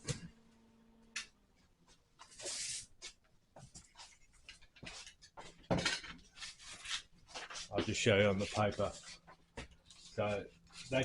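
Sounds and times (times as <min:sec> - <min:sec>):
paper rustling: 0:06.4 - 0:11.0.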